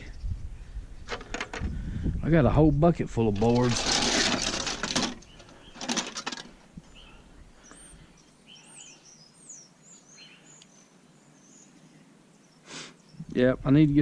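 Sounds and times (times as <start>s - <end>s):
small birds chirping: 5.2s - 14.0s.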